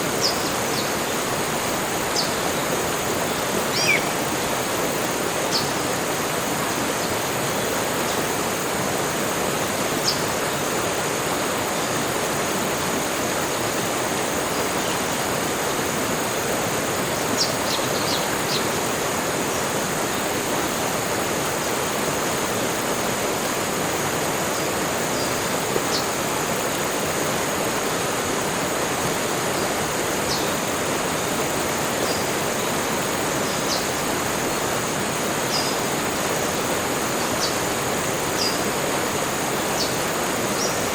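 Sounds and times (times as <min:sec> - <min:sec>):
high insect drone: 0:00.0 - 0:40.9
steady rushing like running water: 0:00.0 - 0:40.9.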